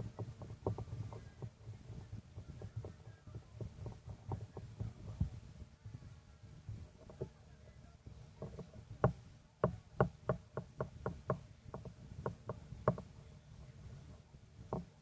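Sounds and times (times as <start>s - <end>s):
sharp knocks: 0.0s - 5.3s, 8.4s - 13.1s.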